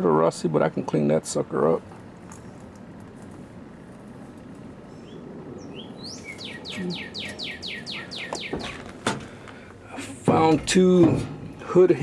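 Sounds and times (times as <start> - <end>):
bird singing: 4.8 - 9.0.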